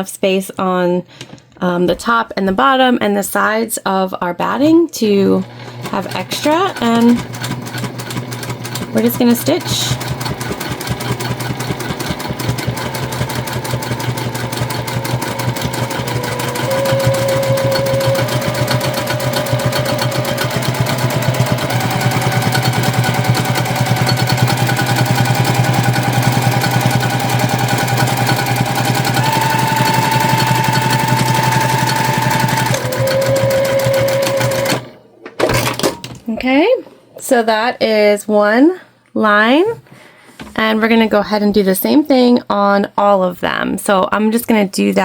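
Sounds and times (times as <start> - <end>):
sewing machine stitching: 5.2 - 36.2.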